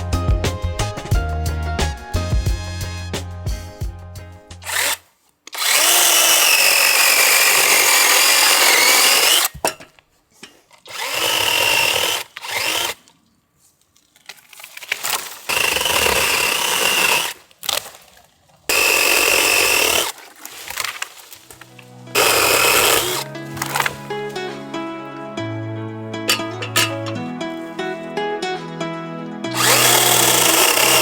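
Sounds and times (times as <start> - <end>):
electric chainsaw cutting wood: 4.6 - 9.5, 10.9 - 13.0, 15.5 - 17.4, 18.7 - 20.2, 22.1 - 24.0, 29.5 - 31.0.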